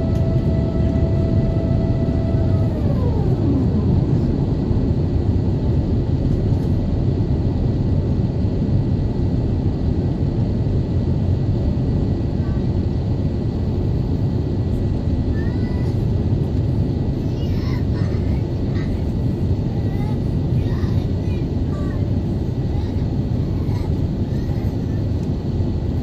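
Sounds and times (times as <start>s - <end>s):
engine whine falling in pitch: 0.0s - 5.8s
jet engines low rumble: 0.0s - 26.0s.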